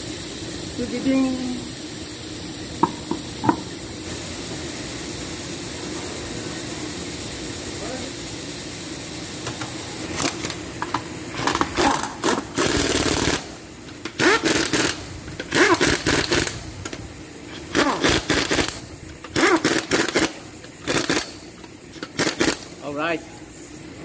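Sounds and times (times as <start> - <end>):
wrench rapid mechanical clatter: 9.4 - 22.8.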